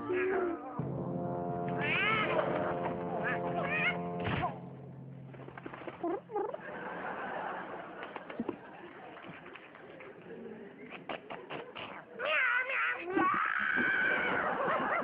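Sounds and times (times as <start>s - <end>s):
background music: 0.0s - 7.5s
cat meowing: 1.8s - 2.3s.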